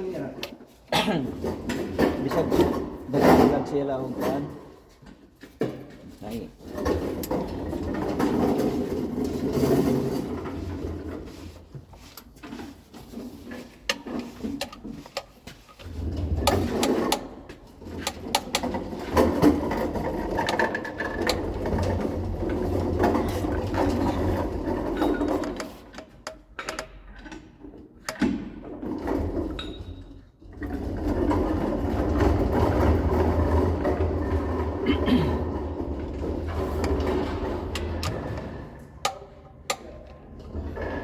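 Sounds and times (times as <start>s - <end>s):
metallic clicks and knocks: 13.8s - 28.4s, 36.3s - 40.9s
machine rumbling: 15.6s - 25.7s, 30.5s - 41.0s.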